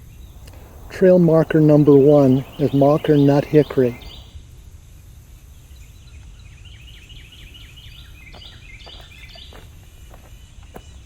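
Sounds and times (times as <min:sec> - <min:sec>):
low outdoor rumble: 0:00.0 - 0:04.4
songbird singing rapid notes: 0:00.0 - 0:04.4, 0:05.7 - 0:11.0.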